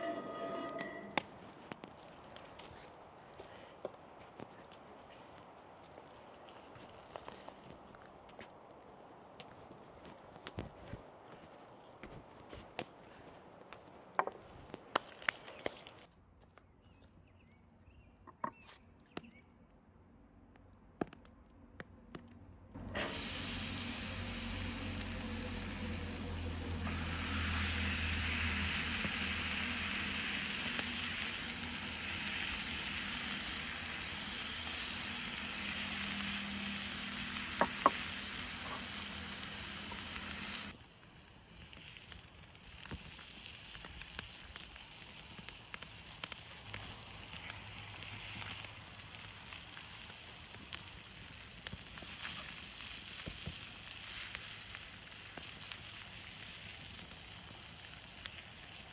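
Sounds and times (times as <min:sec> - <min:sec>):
campfire ticks and crackles: 0:01.3 - 0:16.1, 0:24.0 - 0:58.9
steak sizzling in a hot pan: 0:23.0 - 0:58.9.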